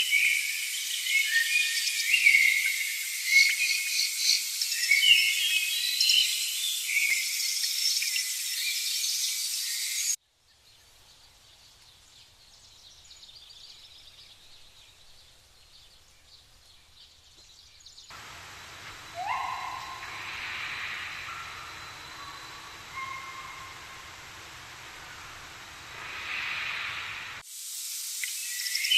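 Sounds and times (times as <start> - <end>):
hiss: 0.0 - 10.2, 18.1 - 28.9
faint scattered bird chirps: 0.0 - 27.4
insects: 0.0 - 28.9
birds chirping and calling: 18.1 - 25.3.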